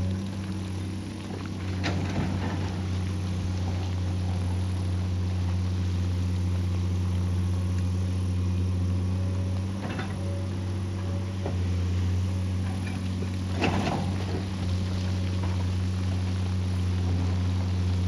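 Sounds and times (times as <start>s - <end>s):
excavator engine running: 0.0s - 18.0s.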